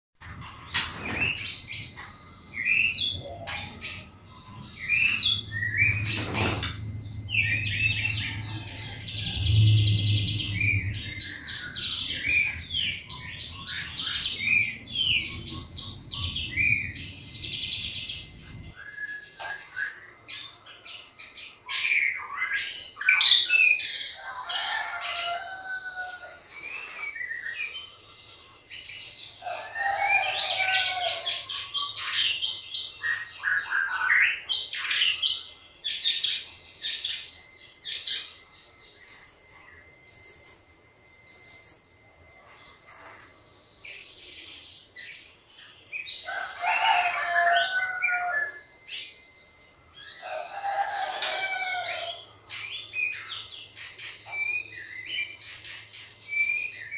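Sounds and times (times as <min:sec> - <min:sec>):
bird singing whistles and chatter: 0:18.7 - 0:20.5.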